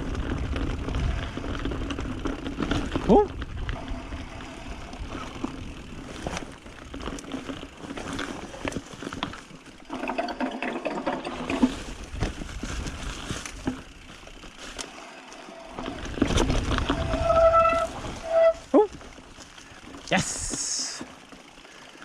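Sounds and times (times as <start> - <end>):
bike rattling and knocking: 0.0 - 22.0
bike tyres on dirt and rock: 0.0 - 22.0.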